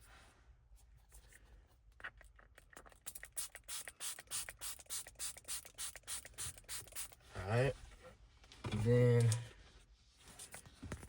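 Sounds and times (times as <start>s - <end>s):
spray bottle squirts: 2.6s - 7.2s.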